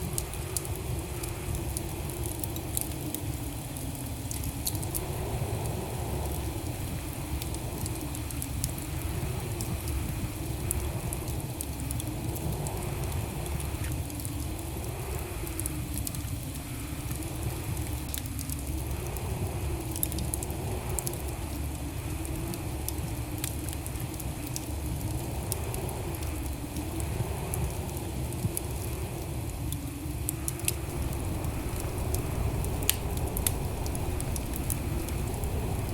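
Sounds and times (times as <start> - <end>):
wood fire crackling: 0.0 - 29.0, 29.6 - 35.9
low rumble of flames: 0.0 - 35.9
faint wavering hum: 30.8 - 35.9.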